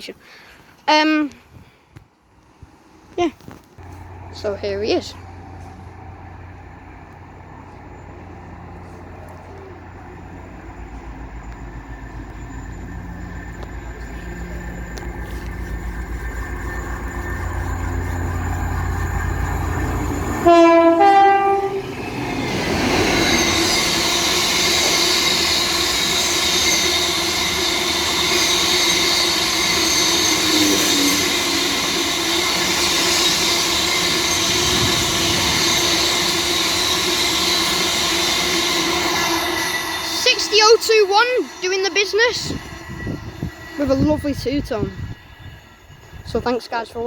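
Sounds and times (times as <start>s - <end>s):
locomotive engine running: 3.8s - 45.2s
two-tone train horn blasts: 20.2s - 22.0s.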